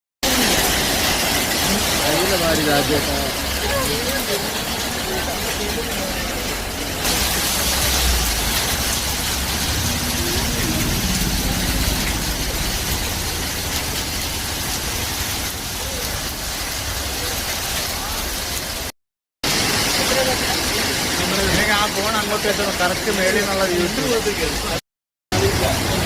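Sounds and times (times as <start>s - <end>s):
rain falling: 0.2s - 26.0s
low rumble: 7.8s - 15.0s.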